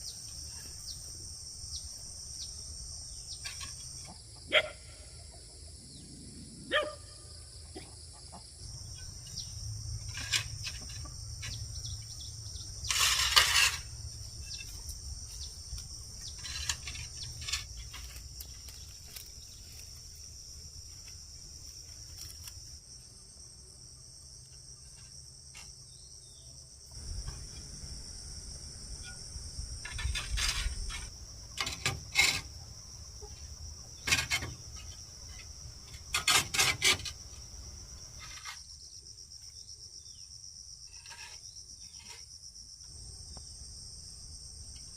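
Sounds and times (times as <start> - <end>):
insects droning: 0.0 - 44.9
rustling: 12.8 - 22.8.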